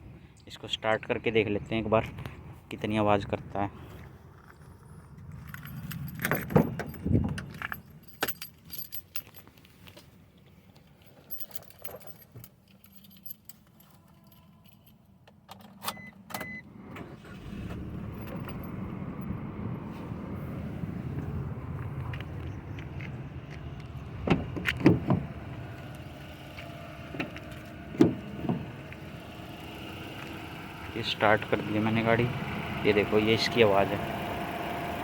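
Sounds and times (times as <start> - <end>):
keys jangling: 5.3 - 10.0, 10.8 - 15.9, 17.9 - 19.4
car engine starting and idling: 15.8 - 35.0.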